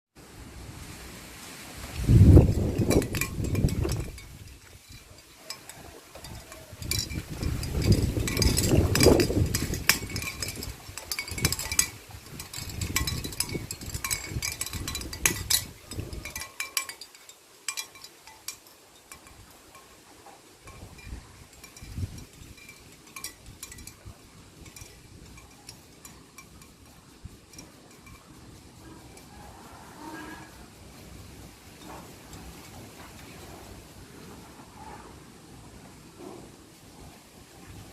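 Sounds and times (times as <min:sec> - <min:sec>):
wind buffeting microphone: 0:01.9 - 0:17.0, 0:20.6 - 0:29.5
seashell wind chime clinking: 0:02.0 - 0:29.5, 0:30.1 - 0:33.6.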